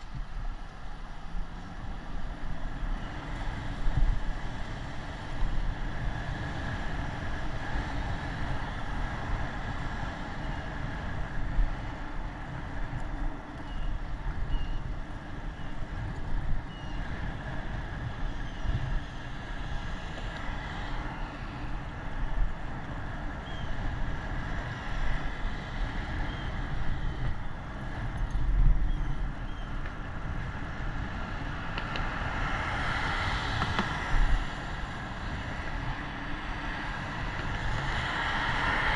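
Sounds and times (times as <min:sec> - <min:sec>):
road traffic noise: 0:00.0 - 0:38.9
wind buffeting microphone: 0:00.0 - 0:38.9
vehicle passing: 0:30.5 - 0:38.9.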